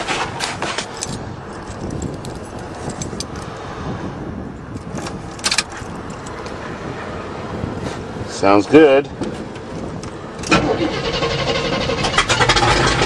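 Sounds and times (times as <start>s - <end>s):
steady low rumble: 0.0s - 8.4s
keys jangling: 0.4s - 3.5s, 4.8s - 6.5s.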